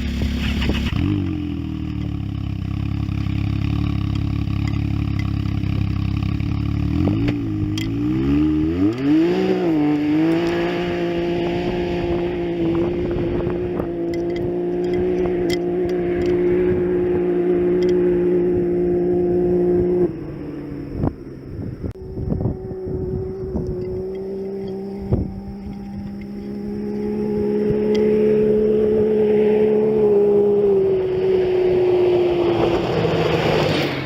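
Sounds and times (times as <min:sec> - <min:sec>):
engine idling and revving: 0:00.0 - 0:34.0.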